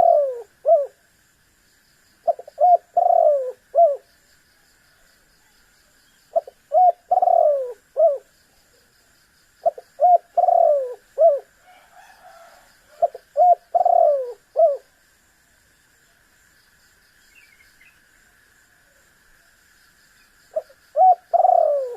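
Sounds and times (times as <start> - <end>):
dove cooing: 0.0 - 1.0, 2.2 - 4.1, 6.3 - 8.3, 9.6 - 14.9, 20.5 - 21.9
faint steady high hiss: 0.0 - 21.9.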